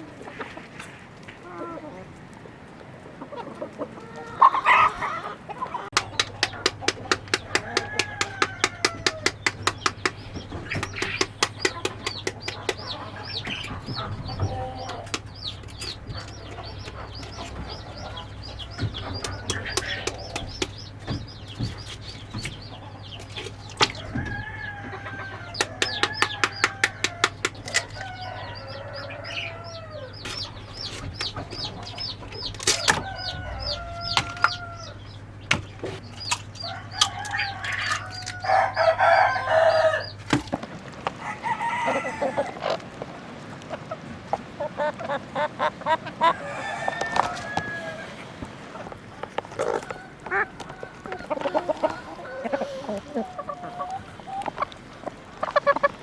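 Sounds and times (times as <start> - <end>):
chicks peeping: 0.0 - 56.0
hens clucking: 0.0 - 56.0
low steady hum: 0.0 - 56.0
sharp clicks: 5.9 - 12.9.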